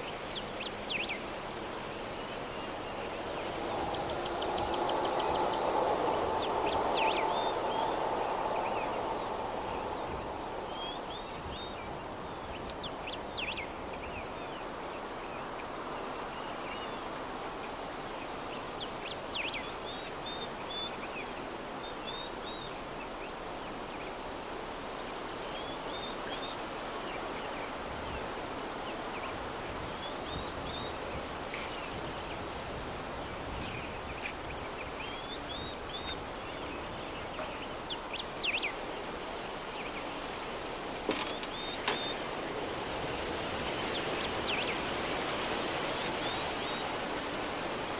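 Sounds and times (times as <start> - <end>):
small birds chirping: 0.0 - 17.0, 33.2 - 45.0
soft breeze: 0.0 - 47.9.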